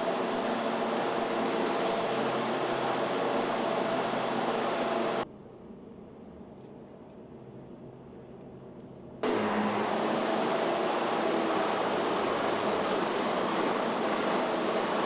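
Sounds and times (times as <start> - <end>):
factory machinery hum: 0.0 - 5.2, 9.2 - 15.0.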